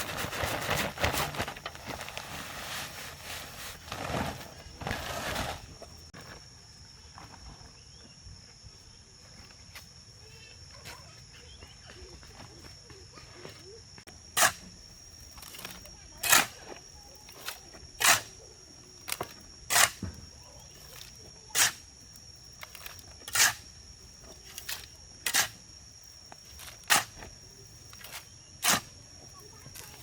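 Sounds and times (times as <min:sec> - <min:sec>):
hand tool scraping wet concrete: 0:14.4 - 0:14.7, 0:19.2 - 0:20.0, 0:20.9 - 0:21.9, 0:22.6 - 0:23.7, 0:24.5 - 0:25.6, 0:26.6 - 0:27.3, 0:28.0 - 0:28.9.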